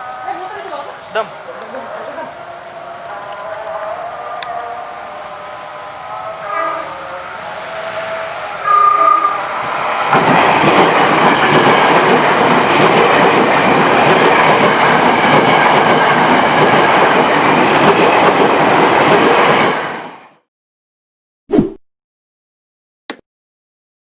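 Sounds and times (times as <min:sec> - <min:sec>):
train horn blast: 0:00.0 - 0:09.7
train wheels clattering over rails: 0:09.6 - 0:20.0.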